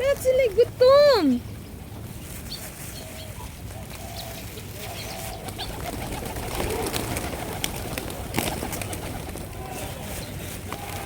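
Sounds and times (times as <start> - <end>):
pigeons cooing: 2.9 - 11.0.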